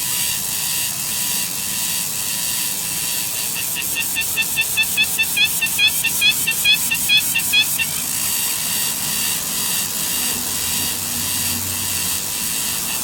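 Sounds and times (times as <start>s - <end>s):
bird chirping rapidly: 3.4s - 8.1s.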